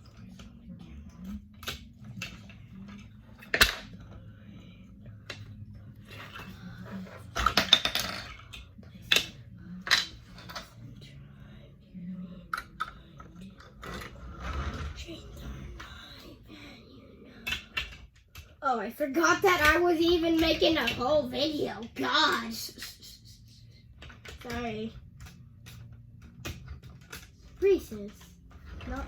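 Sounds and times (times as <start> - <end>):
plastic bricks clicking and clattering: 7.3 - 10.8.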